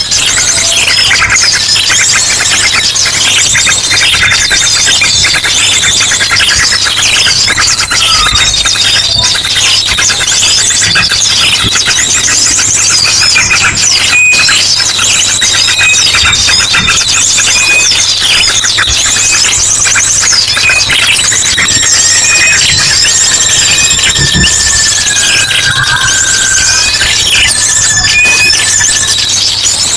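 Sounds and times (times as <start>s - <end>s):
sharp bird calls: 0.0s - 29.9s
small birds chirping and trilling: 0.0s - 29.9s
long falling whistle: 20.9s - 29.9s.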